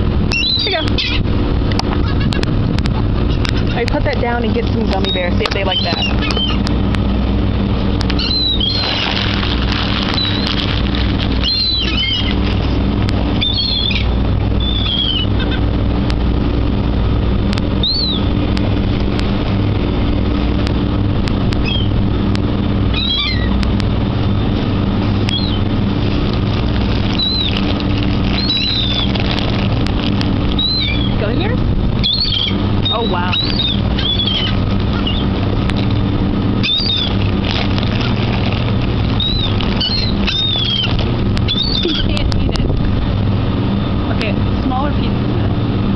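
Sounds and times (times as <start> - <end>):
low engine hum: 0.0 - 45.9
seagulls mewing: 0.3 - 3.9, 4.9 - 6.8, 8.0 - 15.8, 17.7 - 20.3, 21.5 - 22.0, 22.8 - 42.8.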